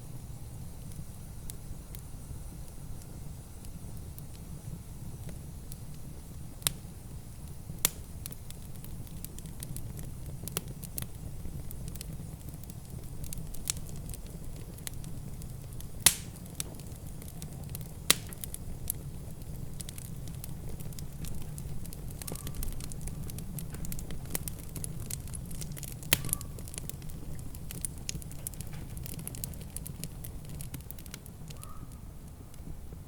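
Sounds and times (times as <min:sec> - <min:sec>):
wood fire crackling and popping: 0:00.1 - 0:33.0.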